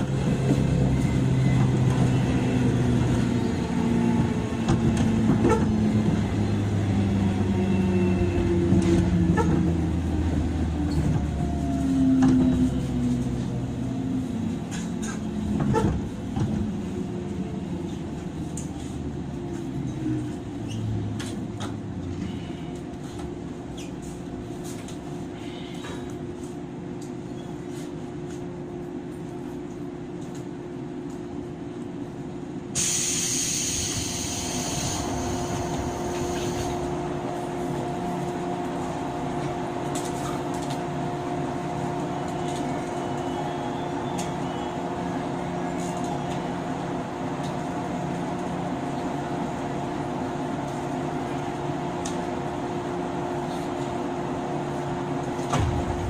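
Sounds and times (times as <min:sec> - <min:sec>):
train motor hum: 0:00.0 - 0:23.6
hiss: 0:32.8 - 0:36.8
low rumble: 0:55.6 - 0:56.0.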